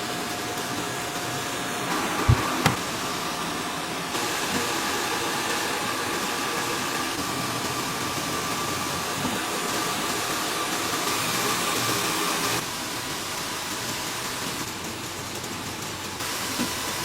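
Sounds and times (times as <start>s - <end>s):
sharp knocks: 2.2s - 3.0s.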